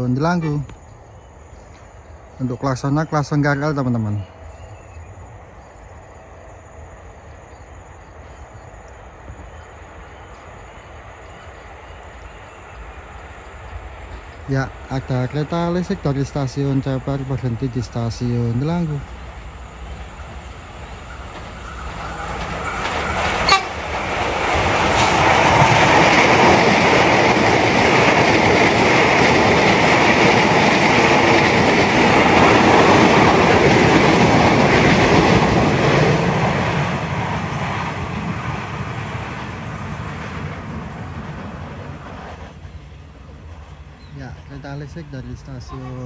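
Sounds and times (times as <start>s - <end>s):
train wheels clattering on rails: 14.1s - 44.1s.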